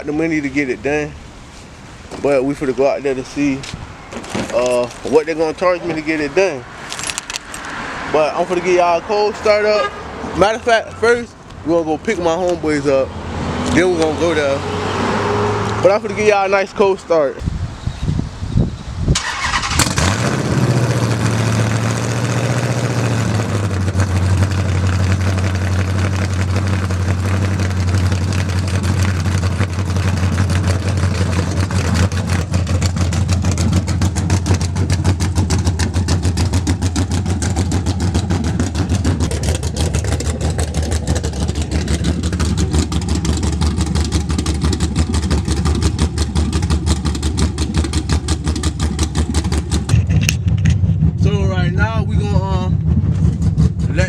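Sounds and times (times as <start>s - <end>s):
car engine revving and idling: 2.1s - 17.2s, 19.2s - 54.0s
engine cranking: 6.8s - 7.8s, 19.2s - 21.6s, 23.7s - 51.7s.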